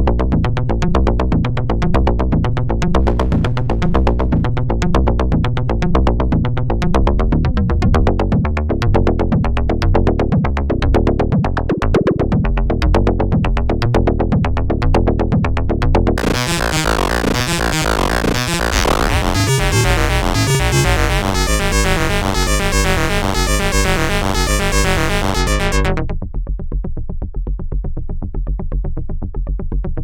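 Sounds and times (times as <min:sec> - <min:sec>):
deep bass pulse: 0:03.0 - 0:04.6, 0:16.2 - 0:26.1
synthesizer drum pattern: 0:16.2 - 0:26.0.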